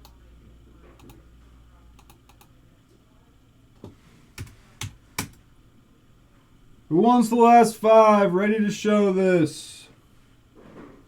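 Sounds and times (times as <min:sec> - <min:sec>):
faint typing on keyboard: 0:01.0 - 0:01.2, 0:01.9 - 0:02.6, 0:03.8 - 0:05.4.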